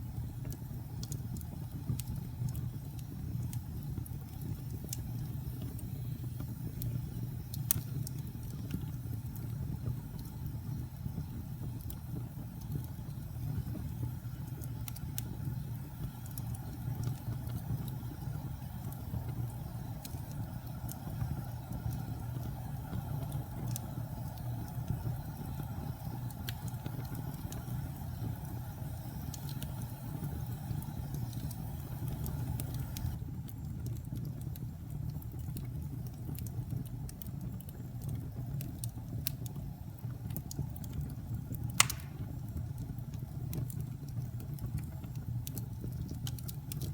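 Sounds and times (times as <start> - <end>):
fire crackling: 0.0 - 46.9
wood fire rumbling: 0.0 - 46.9
sharp pop from fire: 41.7 - 42.6.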